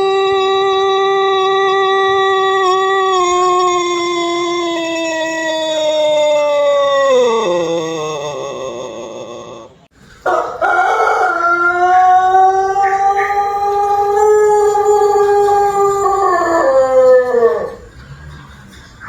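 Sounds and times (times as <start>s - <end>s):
rooster crowing: 10.2s - 18.0s.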